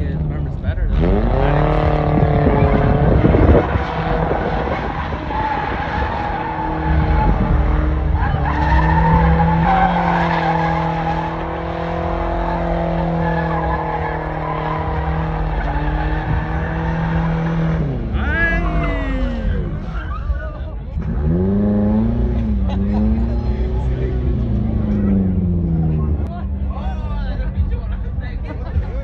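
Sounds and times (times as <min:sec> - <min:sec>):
truck engine revving: 0:00.0 - 0:29.0
tyres squealing on pavement: 0:03.6 - 0:20.8.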